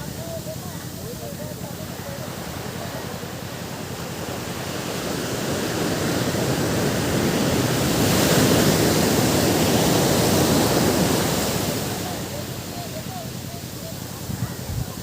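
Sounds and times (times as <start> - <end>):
ocean surf washing in: 0.0 - 15.0.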